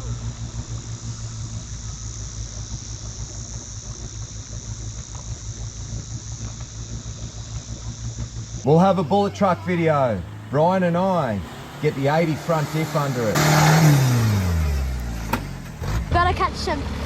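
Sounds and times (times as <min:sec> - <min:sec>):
high-pitched insect drone: 0:00.0 - 0:15.8
vehicle engine running: 0:00.0 - 0:17.0.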